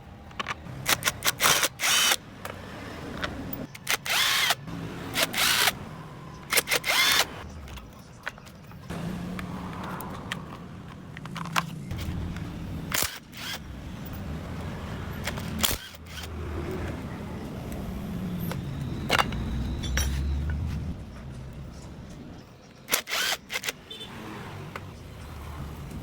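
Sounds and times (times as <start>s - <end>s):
hand tools clicking on metal: 0.2s - 5.8s, 6.4s - 17.1s.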